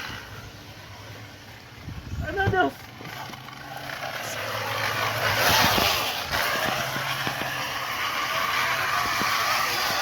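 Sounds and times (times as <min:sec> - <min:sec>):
can rattling against bicycle wheel: 0:02.8 - 0:10.0.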